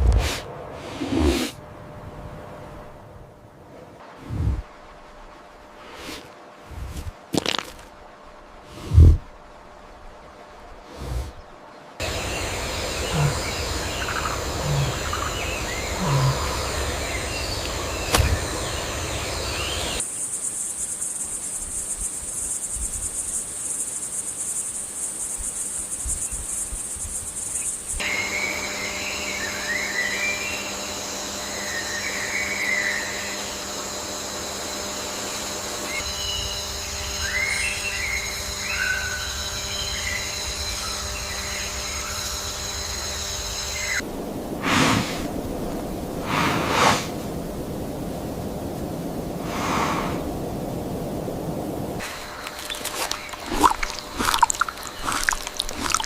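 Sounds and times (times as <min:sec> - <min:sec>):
birds chirping: 0:10.9 - 0:20.0, 0:50.9 - 0:56.0
high insect buzz: 0:12.0 - 0:56.0
insects trilling: 0:12.0 - 0:56.0.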